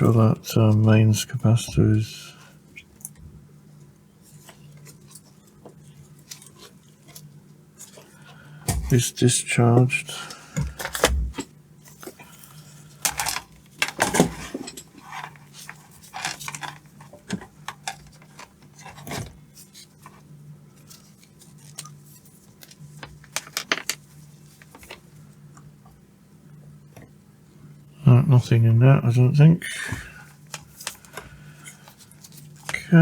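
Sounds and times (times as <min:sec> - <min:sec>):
faint low hum: 0:00.0 - 0:33.0
small metal tools clattering: 0:13.1 - 0:16.8.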